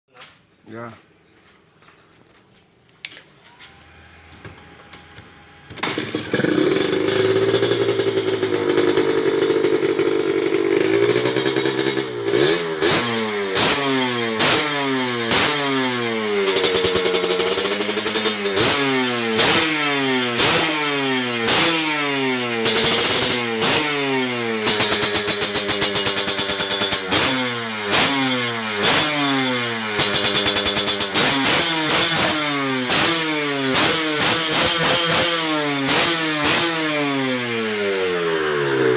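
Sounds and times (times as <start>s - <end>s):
motorcycle engine revving: 3.7s - 38.9s.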